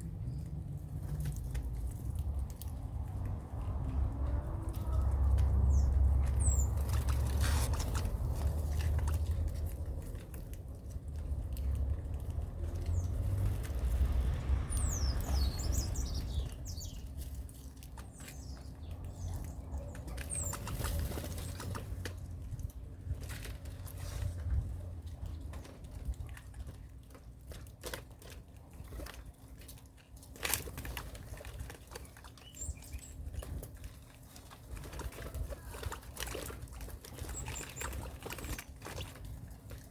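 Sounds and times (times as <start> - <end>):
low rumble: 0.0 - 17.6
small birds fluttering wings: 0.0 - 26.8, 27.8 - 39.9.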